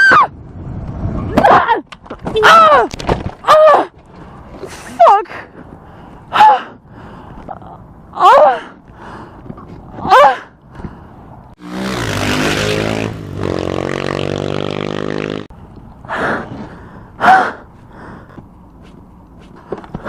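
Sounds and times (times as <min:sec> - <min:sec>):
engine revving: 0:11.6 - 0:15.5.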